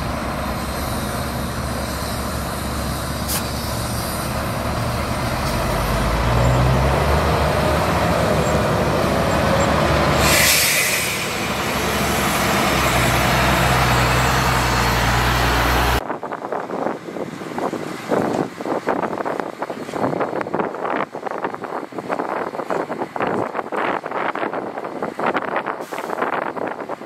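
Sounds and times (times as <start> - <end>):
heavy diesel engine running: 0.0 - 16.0
hiss of air: 0.3 - 4.6, 10.1 - 15.2, 25.7 - 26.7.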